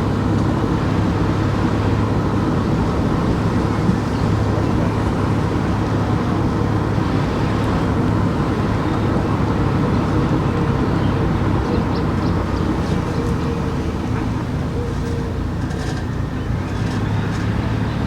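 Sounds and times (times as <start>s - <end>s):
tyre road noise: 0.0s - 18.0s.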